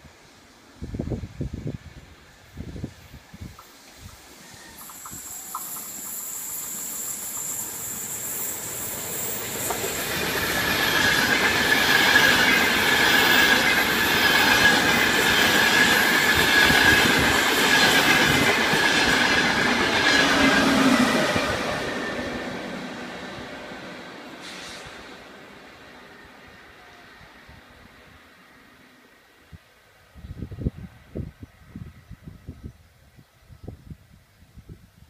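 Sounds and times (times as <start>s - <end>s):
train passing: 0.0s - 29.6s
high wheel squeal: 4.4s - 22.4s.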